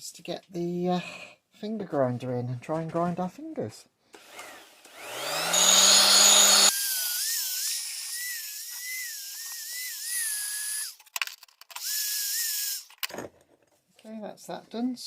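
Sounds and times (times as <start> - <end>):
electric grinder grinding metal: 4.3 - 11.0.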